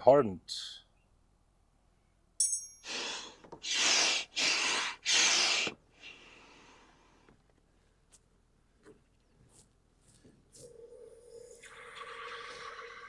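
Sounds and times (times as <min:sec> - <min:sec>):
metallic clink: 0:02.4 - 0:02.9
air hissing: 0:02.8 - 0:06.5
hand air pump whooshing: 0:02.9 - 0:06.2.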